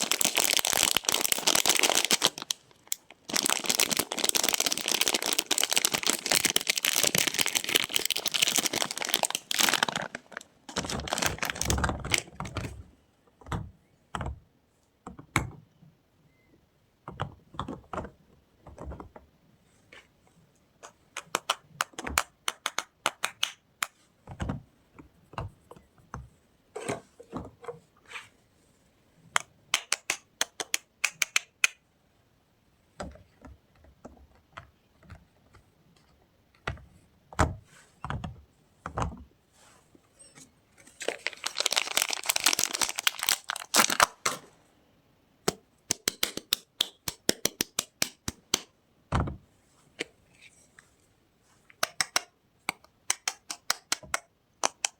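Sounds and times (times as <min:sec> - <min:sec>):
soap packaging unwrapped: 0:00.0 - 0:12.4, 0:40.9 - 0:44.4.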